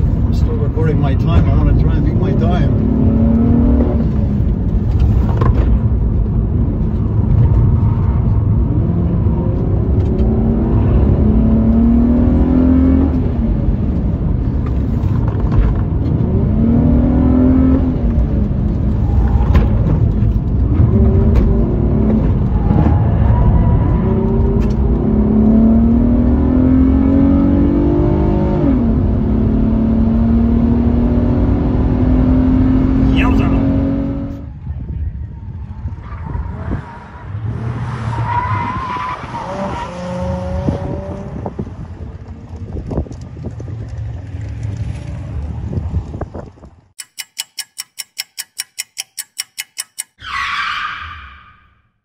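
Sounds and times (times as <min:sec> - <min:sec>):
low road noise: 0:00.0 - 0:52.0
car engine revving: 0:00.4 - 0:05.2, 0:07.6 - 0:14.0, 0:20.7 - 0:34.5.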